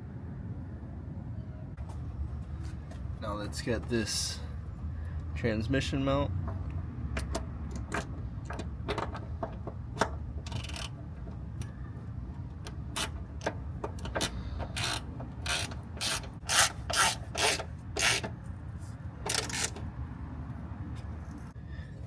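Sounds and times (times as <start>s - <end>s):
ratchet on a bolt: 6.5s - 11.7s, 12.5s - 18.4s, 19.2s - 19.8s.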